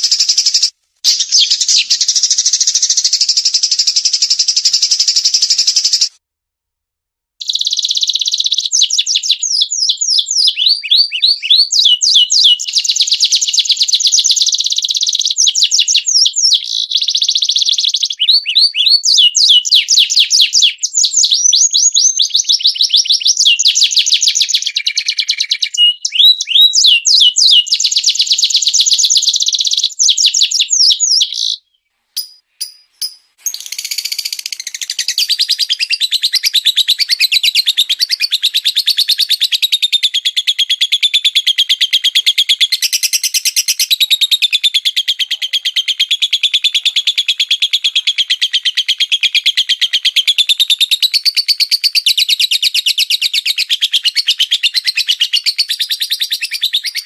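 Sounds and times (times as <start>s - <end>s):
fast high bird chatter: 0.0s - 6.1s, 7.4s - 9.4s, 32.2s - 40.4s.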